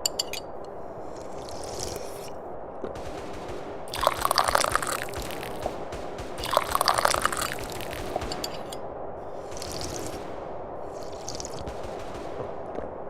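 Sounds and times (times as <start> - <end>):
steady low hiss: 0.0 - 13.0
person slurping tea: 1.0 - 2.4, 3.9 - 5.6, 6.4 - 8.0, 9.4 - 10.2, 11.0 - 11.7.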